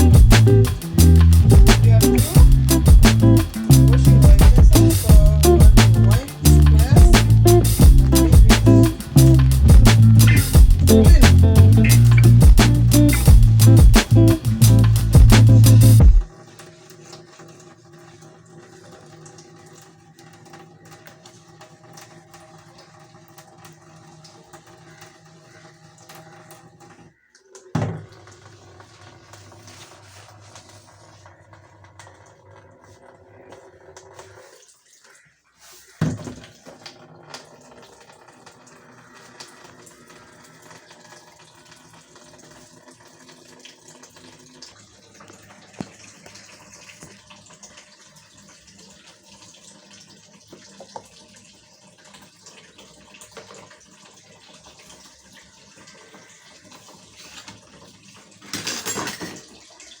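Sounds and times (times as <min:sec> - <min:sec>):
water running and splashing: 0:00.0 - 1:00.0
utensils clinking: 0:58.5 - 0:59.5.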